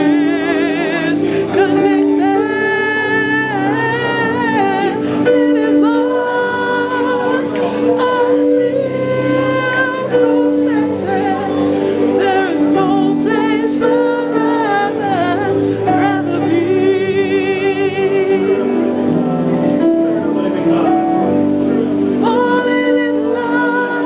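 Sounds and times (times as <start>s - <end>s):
held instrumental chords: 0.0s - 24.0s
person singing with vibrato: 0.0s - 24.0s.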